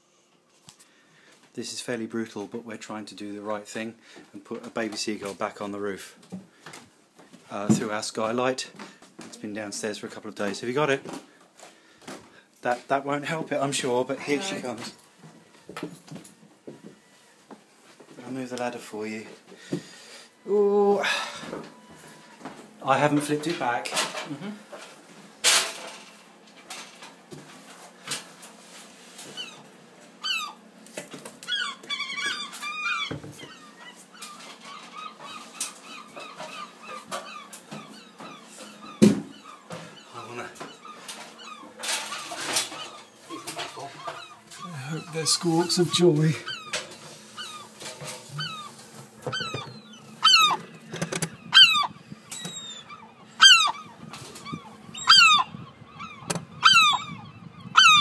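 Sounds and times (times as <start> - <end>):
seagull squawking: 29.3 - 30.6, 31.4 - 58.0.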